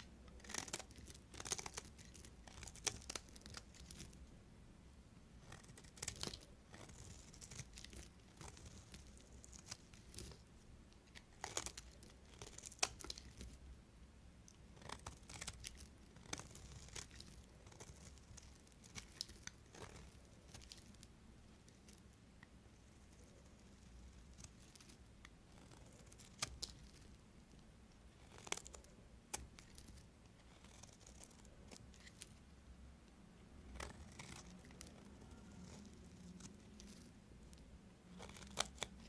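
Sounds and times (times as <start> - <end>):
knife cutting soap: 0.0 - 4.2, 14.5 - 21.1.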